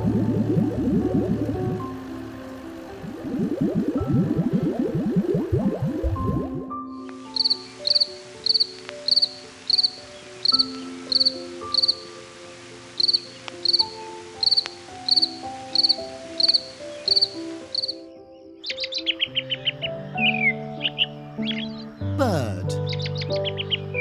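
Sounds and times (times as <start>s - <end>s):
cricket chirping: 0.0s - 6.0s, 7.4s - 12.1s, 13.0s - 18.1s
soft music melody: 0.0s - 24.0s.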